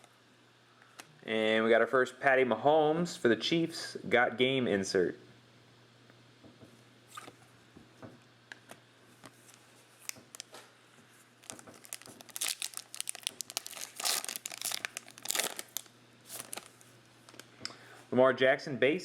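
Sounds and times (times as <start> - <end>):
faint electrical hum: 0.0 - 19.0
plastic wrapper crinkling and tearing: 9.3 - 10.6, 11.4 - 17.5.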